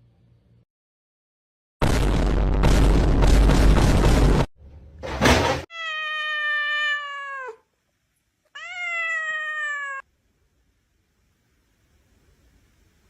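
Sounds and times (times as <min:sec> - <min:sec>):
cat meowing: 0:05.7 - 0:07.7, 0:08.5 - 0:10.0.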